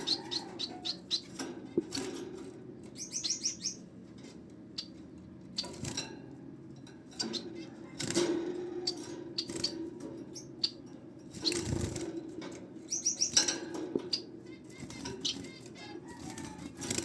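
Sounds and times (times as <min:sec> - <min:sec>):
finches chirping: 0:00.0 - 0:02.1, 0:02.8 - 0:03.9, 0:04.7 - 0:06.0, 0:07.1 - 0:12.0, 0:12.8 - 0:17.0
steady low hum: 0:00.0 - 0:17.0
wings fluttering and rustling: 0:04.0 - 0:17.0.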